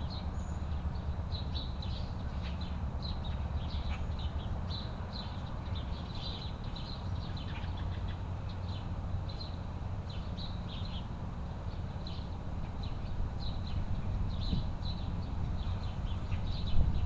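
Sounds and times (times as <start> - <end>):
small birds chirping: 0.0 - 17.0
steady low rumble: 12.4 - 17.0.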